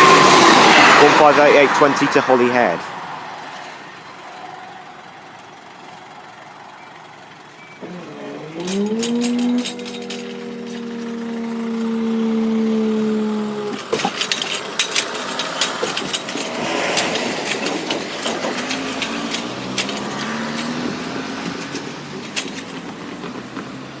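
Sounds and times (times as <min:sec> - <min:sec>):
diesel engines droning: 0:00.0 - 0:24.0
train wheels clicking over rail joints: 0:07.8 - 0:12.1, 0:13.0 - 0:24.0.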